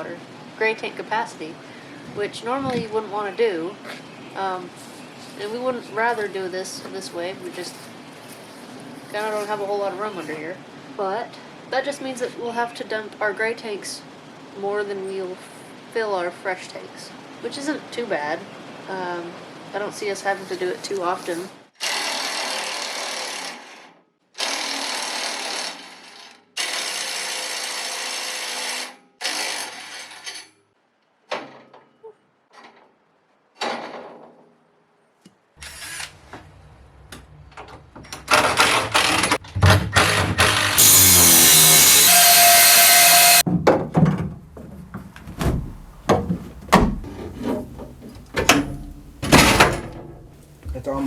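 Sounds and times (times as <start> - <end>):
power tool running: 38.3 - 43.4
rasping hand sawing strokes: 40.0 - 43.4.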